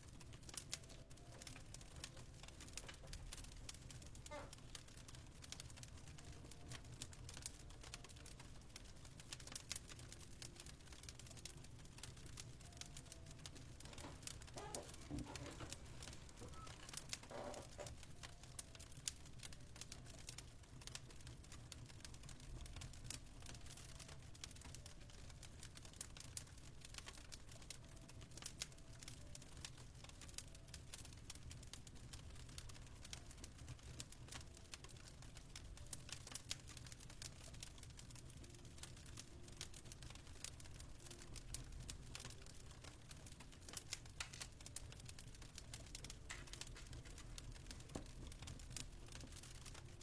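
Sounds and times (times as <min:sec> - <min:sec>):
fire snapping and popping: 0:00.0 - 0:50.0
low rumble of fire: 0:00.0 - 0:50.0.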